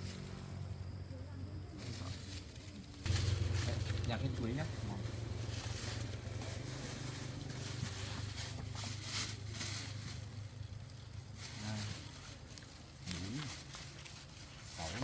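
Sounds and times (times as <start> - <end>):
fruit rustling and clicking: 1.8 - 15.0
steady low hum: 2.7 - 10.5.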